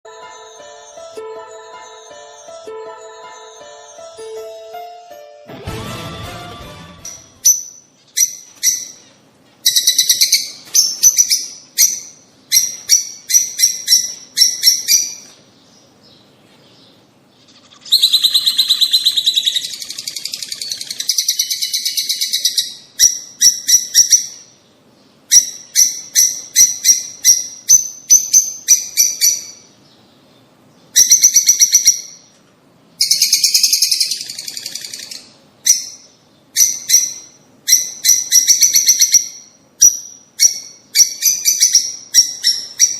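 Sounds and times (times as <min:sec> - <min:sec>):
birds chirping: 0:07.0 - 0:32.4, 0:33.0 - 0:42.9
birds chattering: 0:07.4 - 0:32.4.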